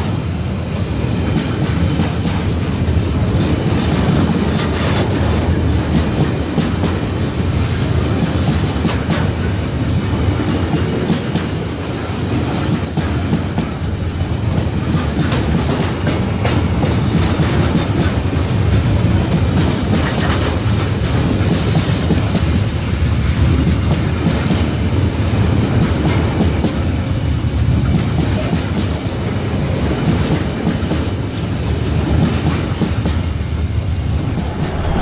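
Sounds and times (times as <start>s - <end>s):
steel wheels rumbling on rails: 0.0s - 35.0s.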